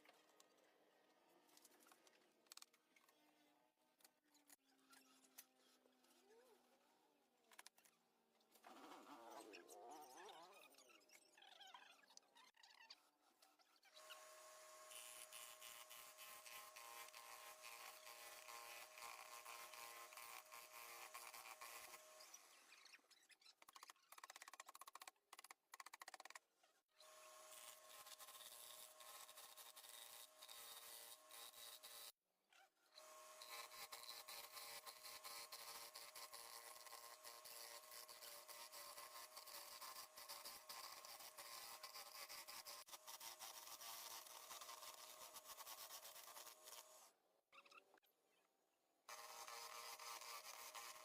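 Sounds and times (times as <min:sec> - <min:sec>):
power tool buzzing: 0:14.0 - 0:22.7, 0:27.0 - 0:32.2, 0:33.0 - 0:47.1, 0:49.1 - 0:51.0
scratchy crackle of tool on wood: 0:14.9 - 0:22.3, 0:33.4 - 0:46.9.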